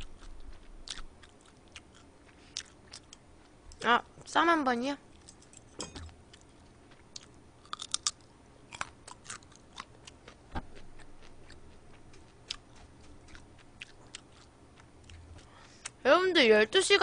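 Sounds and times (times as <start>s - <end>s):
chewing with wet mouth clicks: 0.0s - 3.8s, 6.3s - 16.0s.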